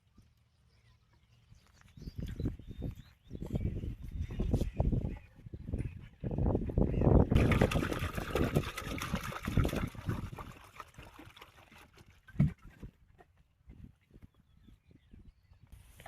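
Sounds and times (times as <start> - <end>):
water pouring and splashing: 7.3 - 12.9.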